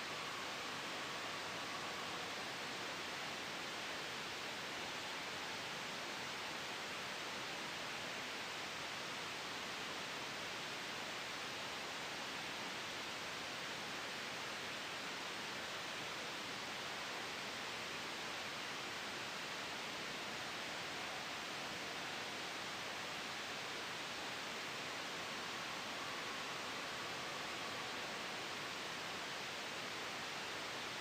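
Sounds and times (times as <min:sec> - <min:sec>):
steady white noise hiss: 0:00.0 - 0:31.0.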